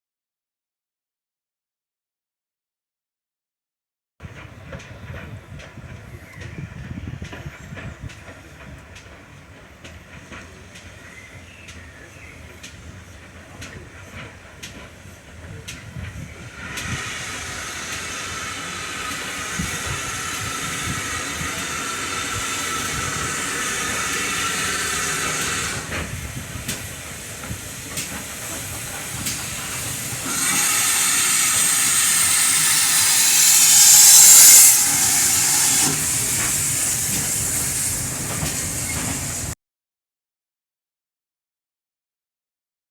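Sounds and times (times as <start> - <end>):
steam locomotive hissing steam: 4.2 - 39.6.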